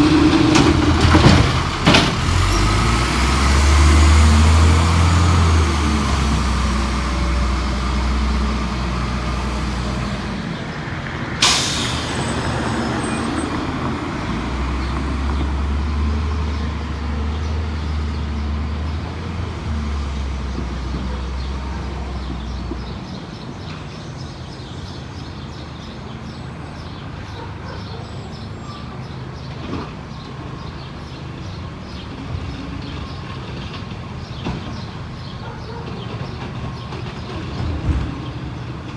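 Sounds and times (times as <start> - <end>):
diesel engine drone: 0.0 - 22.9
air brake hiss: 11.3 - 13.8.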